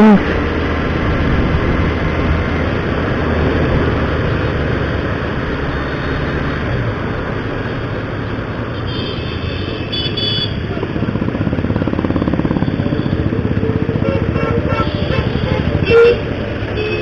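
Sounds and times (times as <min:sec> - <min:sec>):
road and wind noise: 0:00.0 - 0:17.0
motorcycle engine hum: 0:00.1 - 0:17.0.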